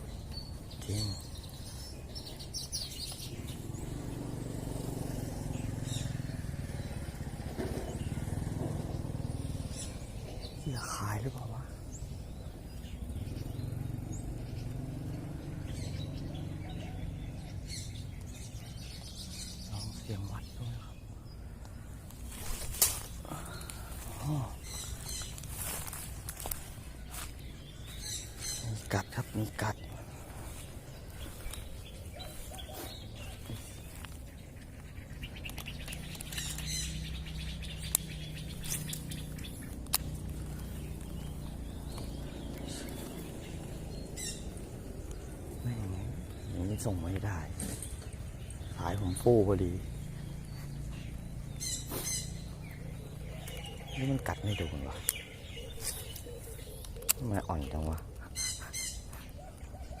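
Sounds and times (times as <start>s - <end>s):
steady low drone: 0.0s - 59.7s
faint bird chirps: 0.0s - 60.0s
sharp clicks: 35.3s - 36.8s, 37.8s - 43.0s, 55.8s - 58.3s.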